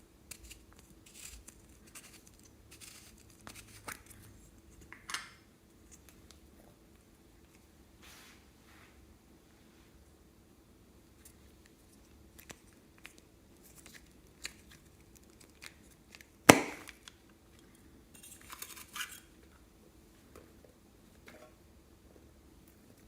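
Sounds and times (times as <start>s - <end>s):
loud sharp snap: 16.5s - 17.0s.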